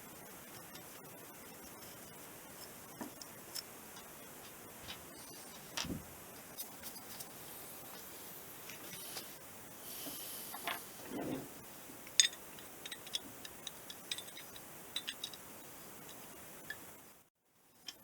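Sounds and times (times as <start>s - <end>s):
steady hiss: 0.0s - 17.8s
small metal parts clicking: 12.0s - 16.9s.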